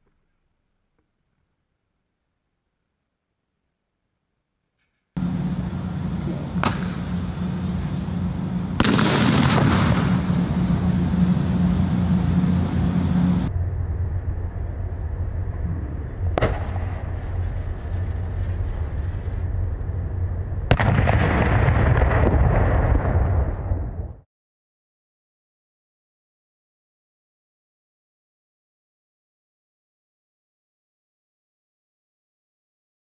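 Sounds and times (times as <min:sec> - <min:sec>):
continuous rushing noise: 0:05.2 - 0:21.2
fireworks bangs: 0:06.6 - 0:12.1, 0:16.3 - 0:19.4, 0:20.7 - 0:23.8.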